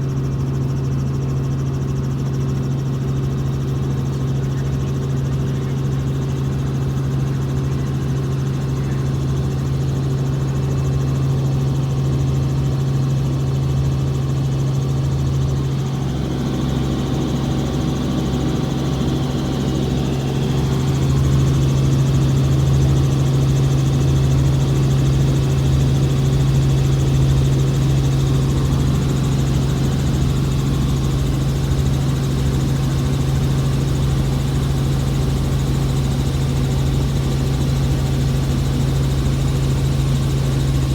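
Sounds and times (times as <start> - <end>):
helicopter engine and rotors: 0.0 - 40.9.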